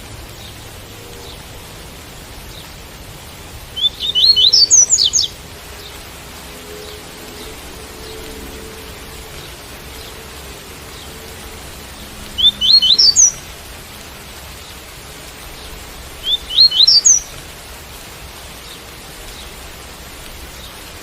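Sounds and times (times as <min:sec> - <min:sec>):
steady rain: 0:00.0 - 0:21.0
bird singing high notes: 0:03.8 - 0:13.6.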